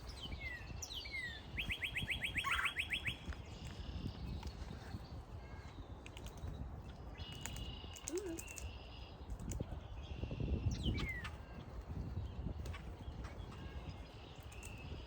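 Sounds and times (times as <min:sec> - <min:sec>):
wild birds chirping and whistling: 0:00.0 - 0:06.6, 0:10.0 - 0:11.5.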